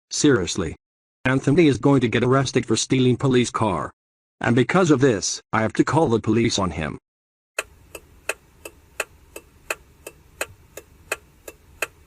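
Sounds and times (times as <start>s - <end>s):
mechanical ticking: 7.6s - 12.0s.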